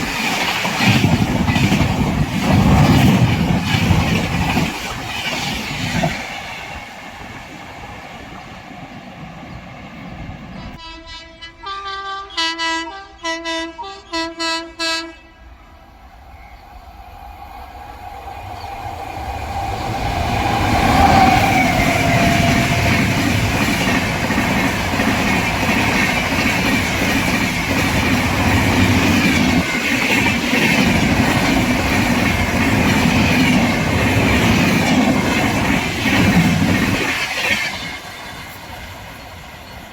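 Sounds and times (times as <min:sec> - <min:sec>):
express train passing: 0:00.0 - 0:39.9
train horn blasts: 0:10.6 - 0:15.8.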